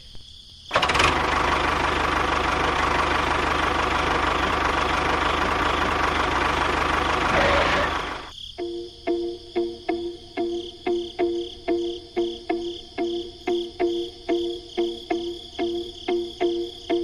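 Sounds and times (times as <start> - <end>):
small motor running: 0.7 - 8.3.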